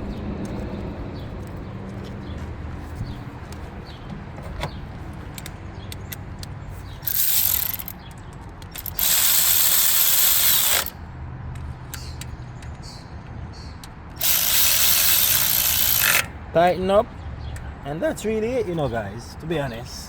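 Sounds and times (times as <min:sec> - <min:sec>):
ratchet wrench clicking: 0:07.0 - 0:11.0, 0:14.1 - 0:16.3.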